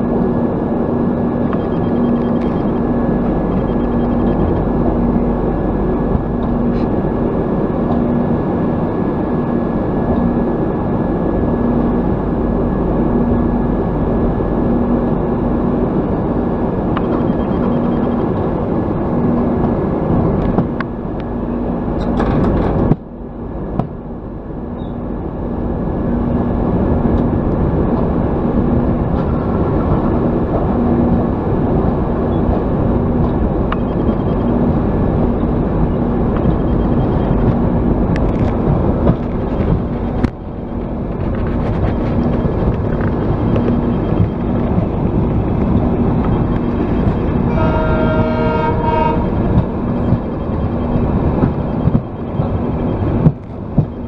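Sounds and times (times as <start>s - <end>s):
train rumbling on track: 0.0s - 54.0s
train horn: 47.4s - 49.5s.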